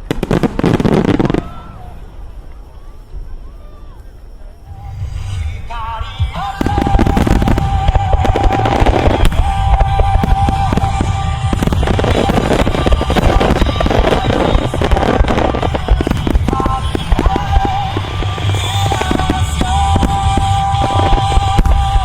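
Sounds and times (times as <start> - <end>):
firework shells bursting and crackling: 0.0 - 2.7, 6.0 - 22.0
loud music: 5.0 - 22.0.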